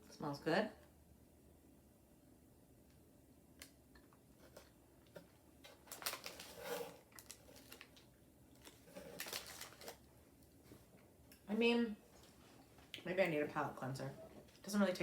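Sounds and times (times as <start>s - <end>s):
plastic wrapper crinkling: 5.7s - 10.1s.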